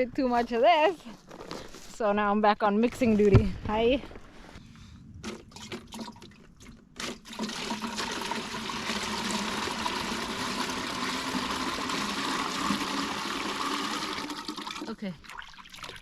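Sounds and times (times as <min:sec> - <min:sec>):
water pouring into a container: 0:05.2 - 0:06.4, 0:07.0 - 0:16.0.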